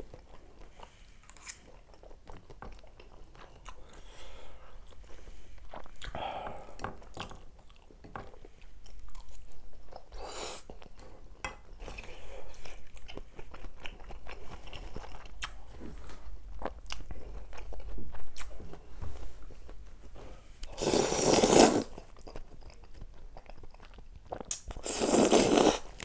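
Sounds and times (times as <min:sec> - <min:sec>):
person chewing crunchy food: 0:04.7 - 0:19.6, 0:20.6 - 0:26.0.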